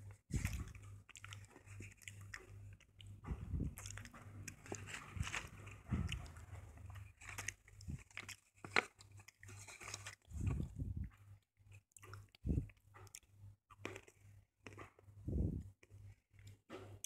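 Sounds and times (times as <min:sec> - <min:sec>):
chewing crunches: 0:00.3 - 0:10.7.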